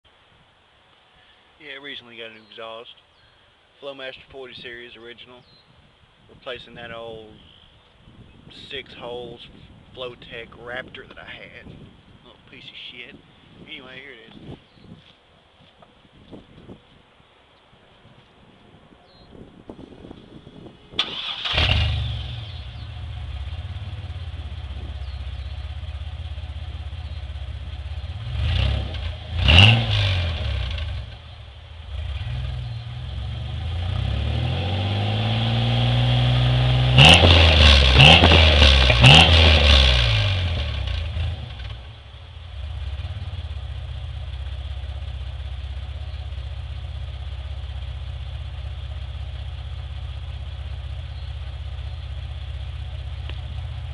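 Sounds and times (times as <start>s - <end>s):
engine exhaust idling and revving: 21.0s - 53.9s.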